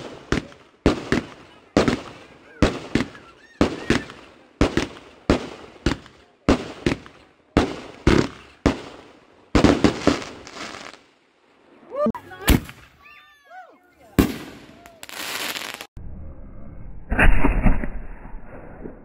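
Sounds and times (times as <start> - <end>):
fireworks banging: 0.0 - 11.1, 14.1 - 16.0
fireworks crackling: 0.0 - 13.0, 14.0 - 16.0.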